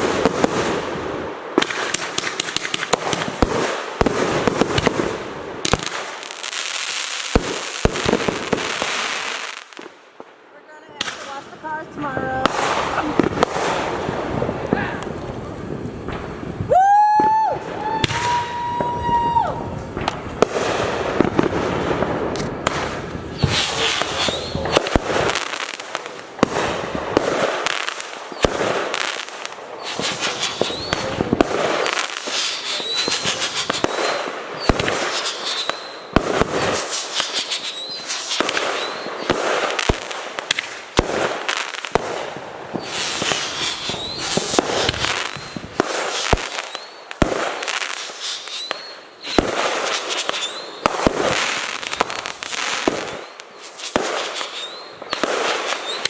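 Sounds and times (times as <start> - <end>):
firework bangs and crackling: 0.0 - 56.0
whistling firework: 12.4 - 56.0.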